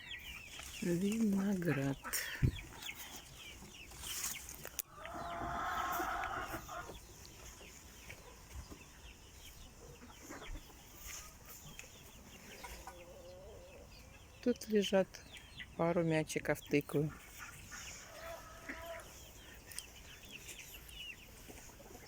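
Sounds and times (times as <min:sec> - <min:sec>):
drawn-out hen call: 0:00.0 - 0:03.4, 0:04.9 - 0:07.1, 0:17.0 - 0:19.5
hens clucking: 0:00.0 - 0:22.0.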